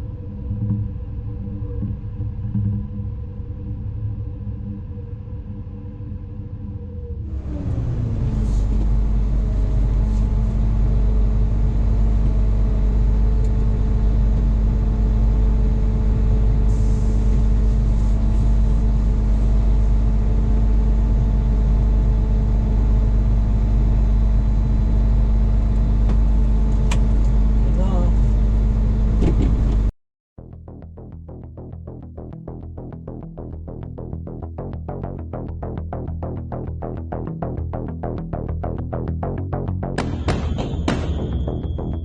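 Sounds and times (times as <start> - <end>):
large engine running: 6.9 - 29.9.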